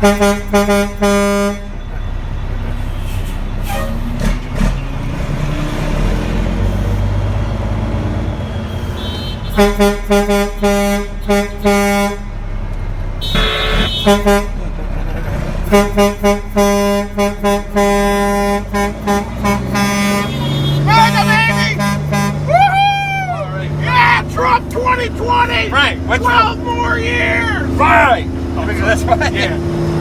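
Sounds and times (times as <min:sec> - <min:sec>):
truck horn honks: 0:00.0 - 0:04.2, 0:08.6 - 0:14.8, 0:15.6 - 0:22.7, 0:23.7 - 0:29.4
truck engine running: 0:00.0 - 0:08.8, 0:09.5 - 0:30.0.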